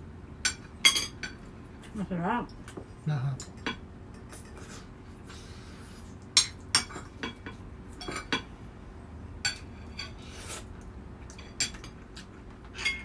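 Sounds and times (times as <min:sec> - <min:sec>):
utensils clinking on plates: 0:06.4 - 0:08.5, 0:11.3 - 0:13.0.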